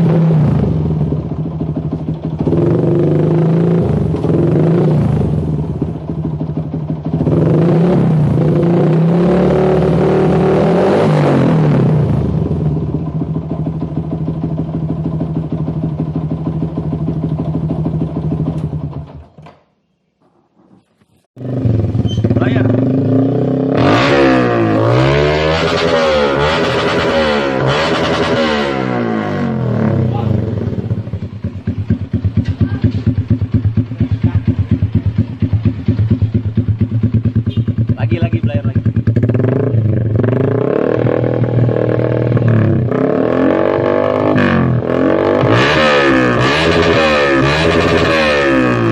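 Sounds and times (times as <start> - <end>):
motorcycle engine idling: 0.2 - 8.6, 11.9 - 19.9, 21.0 - 23.7, 29.0 - 43.0.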